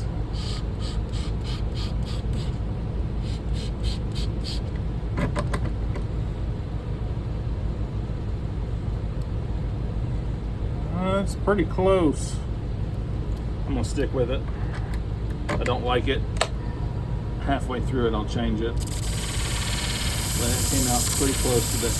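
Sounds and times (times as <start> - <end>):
blade hissing across hone: 18.8 - 21.9
sharpening machine humming: 18.8 - 21.9.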